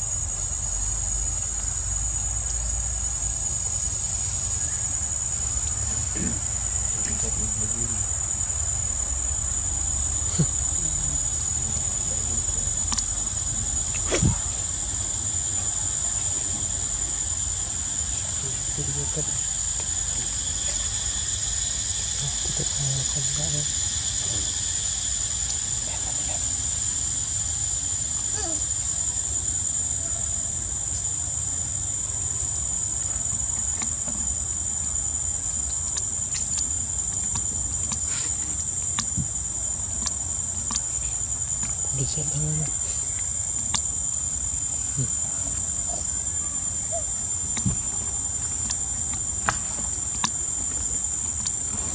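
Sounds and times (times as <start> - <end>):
insects droning: 0.0 - 51.9
faint clicks: 12.8 - 13.1, 42.9 - 43.9.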